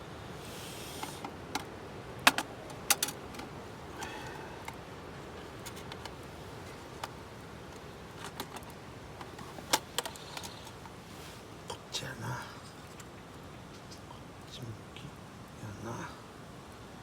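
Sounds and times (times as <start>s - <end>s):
rustling: 5.3s - 11.6s.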